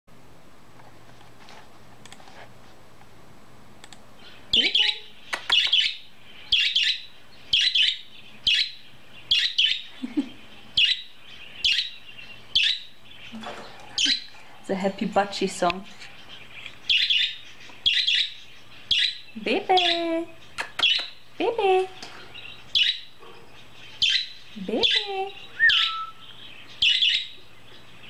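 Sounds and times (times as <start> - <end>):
budgerigar chirping: 4.2 - 9.9, 10.8 - 13.0, 16.2 - 20.1, 22.4 - 27.4.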